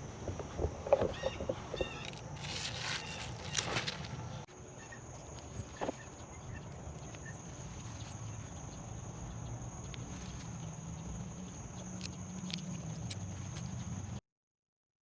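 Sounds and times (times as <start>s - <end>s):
insects droning: 0.0s - 14.2s
rustling: 1.1s - 4.5s.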